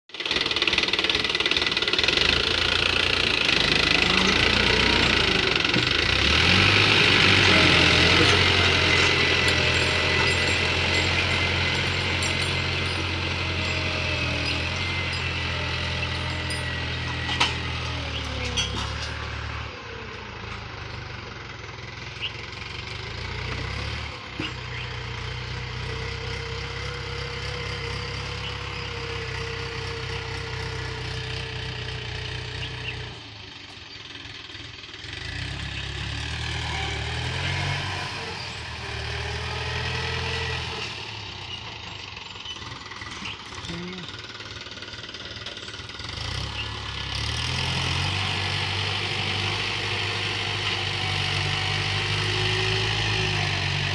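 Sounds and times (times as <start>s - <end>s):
tractor engine running: 0.1s - 53.9s
people's voices: 3.6s - 5.8s, 7.3s - 8.9s, 43.6s - 44.2s.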